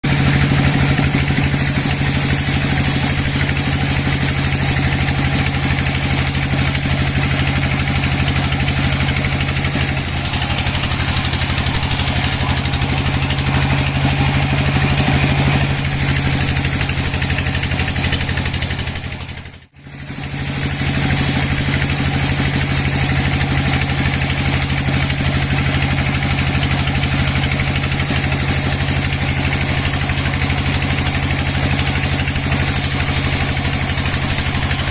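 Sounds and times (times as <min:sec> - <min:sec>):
engine humming steadily: 0:00.0 - 0:34.9.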